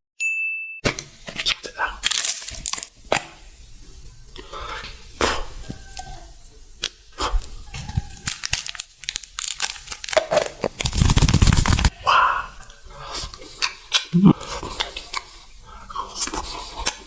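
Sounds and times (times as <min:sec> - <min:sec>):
eating sounds: 0:01.3 - 0:03.4, 0:04.3 - 0:17.0
food packaging crinkling: 0:01.4 - 0:03.3, 0:07.7 - 0:11.9.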